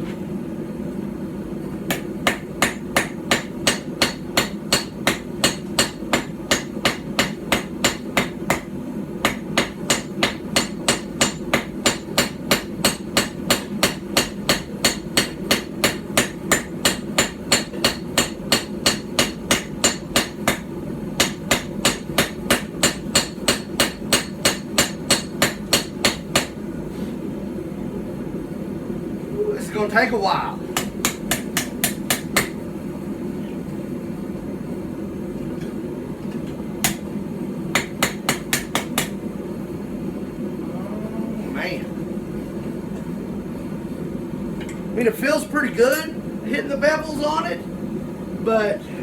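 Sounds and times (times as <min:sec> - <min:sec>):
hammer striking hot steel on anvil: 0:01.9 - 0:26.6, 0:30.8 - 0:32.6, 0:36.8 - 0:37.1, 0:37.7 - 0:39.2.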